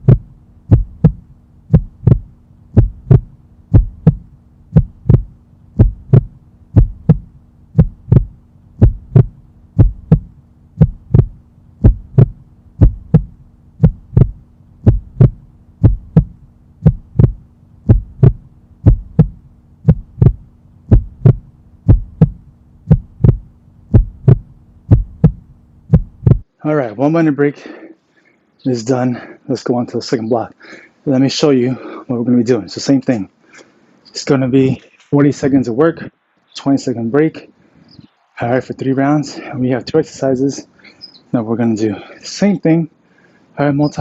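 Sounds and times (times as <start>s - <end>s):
heartbeat lub-dub: 0.0s - 26.5s
constant low hum: 0.0s - 44.0s.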